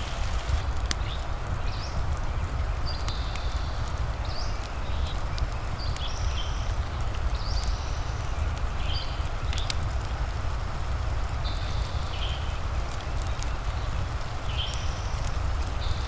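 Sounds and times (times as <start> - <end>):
low rumble: 0.0 - 1.0
rain hissing: 0.0 - 1.5
wood fire crackling: 0.0 - 16.0.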